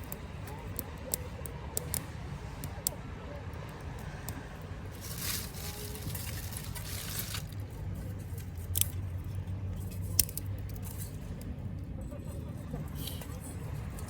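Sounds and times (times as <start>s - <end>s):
wood fire crackling: 0.0s - 3.0s, 4.0s - 11.5s.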